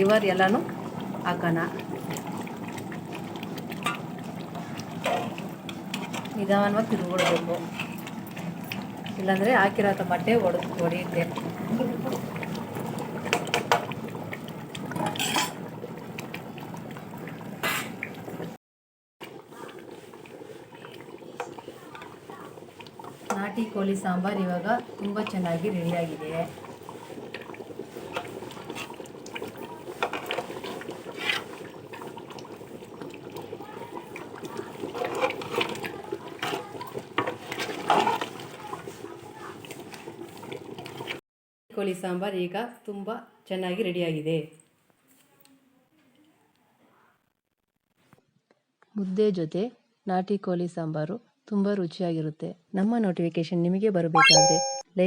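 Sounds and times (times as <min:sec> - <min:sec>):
ladle stirring thick liquid: 0:00.0 - 0:18.6, 0:19.2 - 0:41.2.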